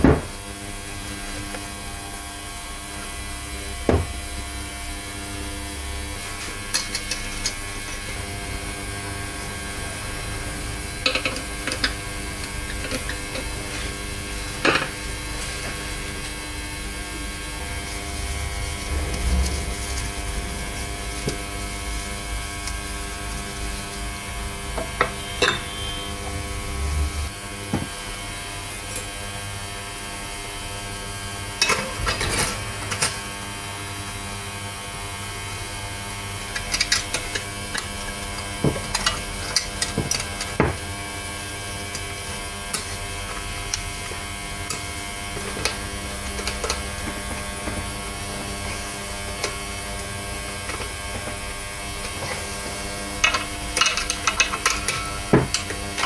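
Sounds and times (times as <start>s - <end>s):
steady electrical hum: 0.0s - 56.0s
metal parts clicking and clattering: 10.9s - 13.6s, 31.6s - 33.2s, 36.5s - 40.9s, 53.2s - 56.0s.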